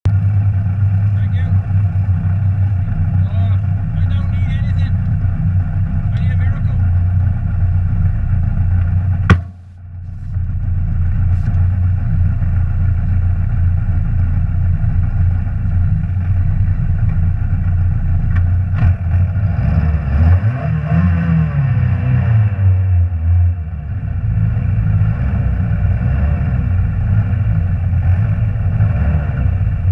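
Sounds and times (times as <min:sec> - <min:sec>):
rally car engine revving: 0:00.1 - 0:29.9
sharp crack: 0:08.8 - 0:09.8.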